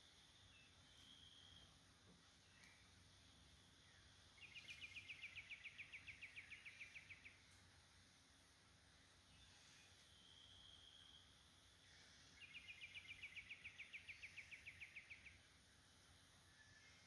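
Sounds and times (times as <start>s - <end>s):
songbird trill: 0.0s - 17.0s.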